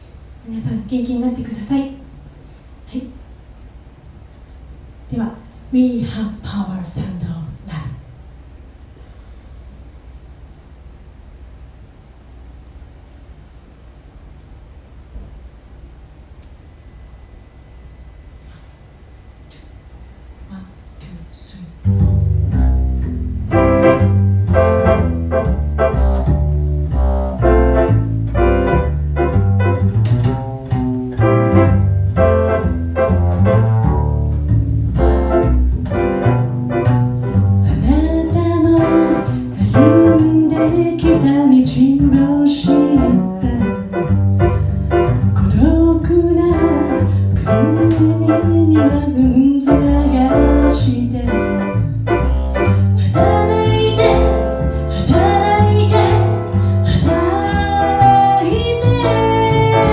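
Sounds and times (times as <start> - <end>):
piano and bass playing: 21.8 - 59.9
woman singing: 37.7 - 44.1, 45.4 - 51.7, 53.0 - 59.9.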